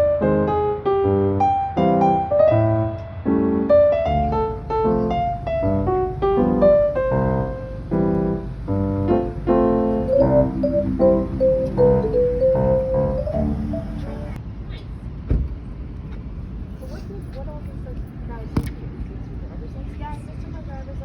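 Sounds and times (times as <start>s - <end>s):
gentle piano music: 0.0s - 14.4s.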